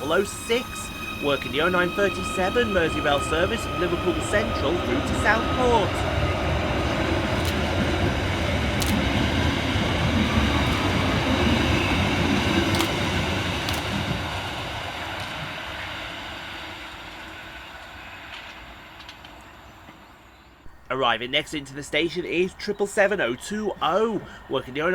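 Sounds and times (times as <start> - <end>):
train wheels rumbling: 0.0 - 20.0, 20.6 - 24.9
sharp clicks: 12.7 - 13.0.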